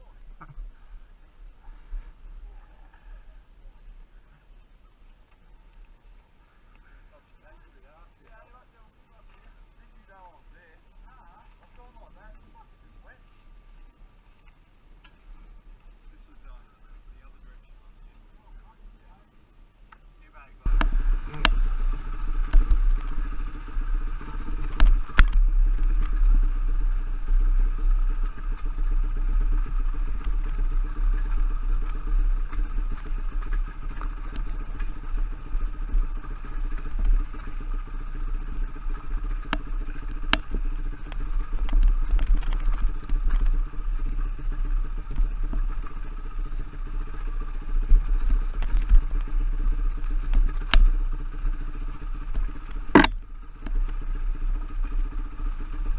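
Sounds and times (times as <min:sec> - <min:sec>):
motorcycle engine rumbling: 0:00.0 - 0:55.9
sharp knocks: 0:52.9 - 0:53.2.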